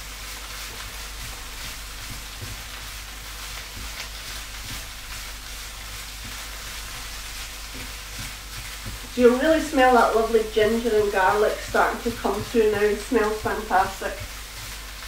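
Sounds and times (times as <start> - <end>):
tofu sizzling in oil: 0.0 - 15.0
spatula knocking pan: 0.6 - 15.0.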